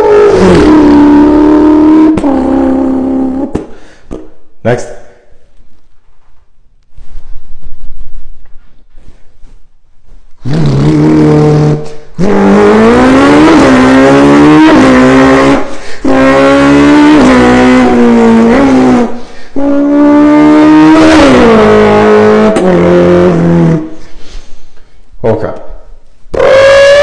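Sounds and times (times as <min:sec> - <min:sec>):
car engine revving: 0:00.0 - 0:03.7, 0:10.4 - 0:24.0.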